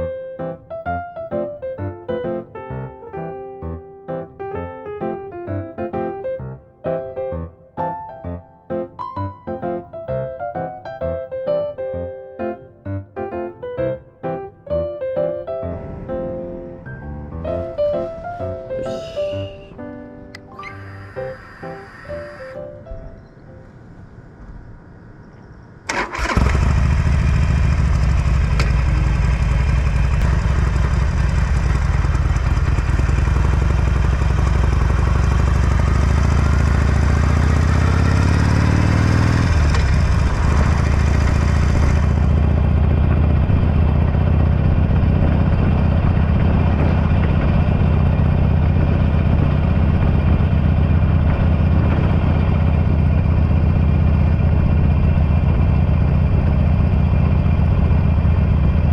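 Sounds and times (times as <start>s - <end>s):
motorcycle engine idling and revving: 24.4s - 58.9s.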